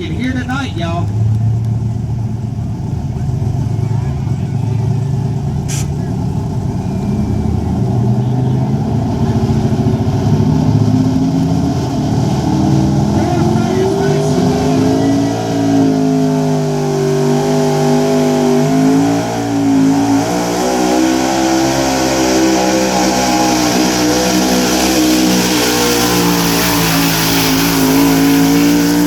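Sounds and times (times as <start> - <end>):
truck engine at high revs: 0.0 - 29.0.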